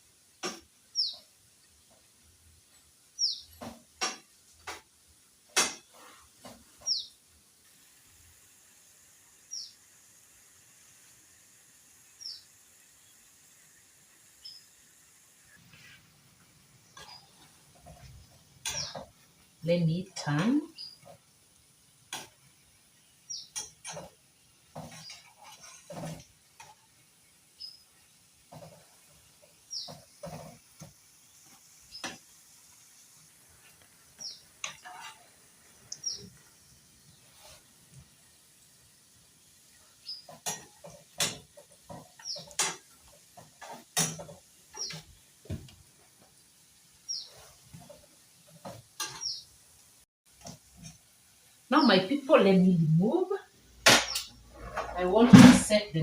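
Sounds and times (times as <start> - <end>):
utensil knocking and scraping a pan: 17.0 - 19.2, 22.1 - 22.4, 23.4 - 26.8, 28.4 - 29.1, 29.8 - 31.0, 31.9 - 32.3, 34.2 - 35.3, 40.2 - 45.7, 48.6 - 49.4, 53.9 - 55.8.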